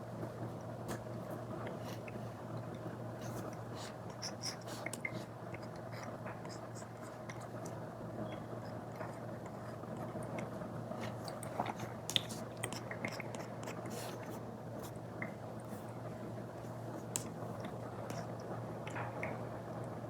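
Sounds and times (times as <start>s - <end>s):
stylus tapping and scratching on screen: 3.2s - 10.5s.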